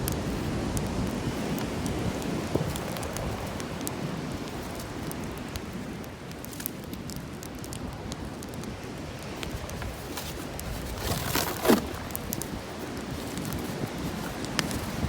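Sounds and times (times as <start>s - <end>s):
bonfire crackling: 0.0s - 15.0s.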